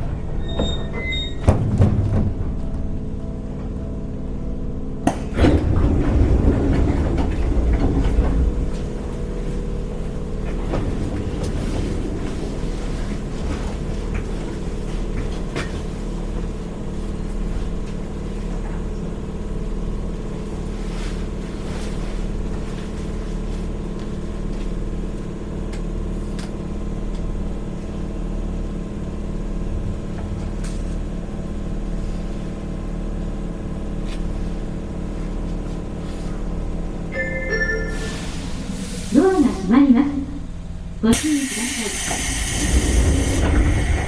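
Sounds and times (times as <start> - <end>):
electric train hum: 0.0 - 44.0
low pulsing drone: 2.2 - 14.3.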